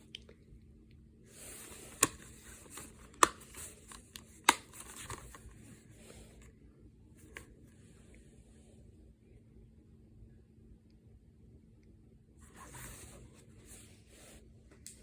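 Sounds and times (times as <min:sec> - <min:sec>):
plastic cases rustling and sliding: 0:01.3 - 0:06.5
plastic case clicking shut: 0:01.9 - 0:05.4.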